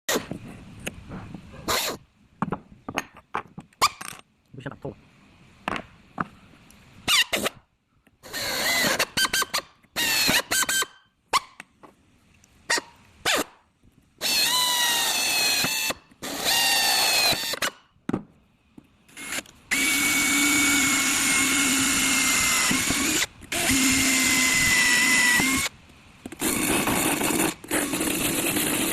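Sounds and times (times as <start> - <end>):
electric drill boring holes: 8.2 - 10.8, 14.2 - 17.8, 19.2 - 25.7, 26.3 - 28.9.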